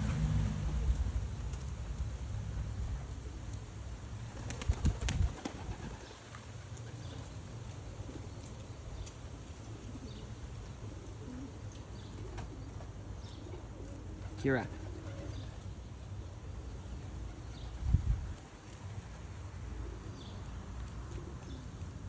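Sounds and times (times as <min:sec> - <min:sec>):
wings flapping: 0:04.2 - 0:07.3, 0:14.2 - 0:15.6
pigeons cooing: 0:04.2 - 0:22.0.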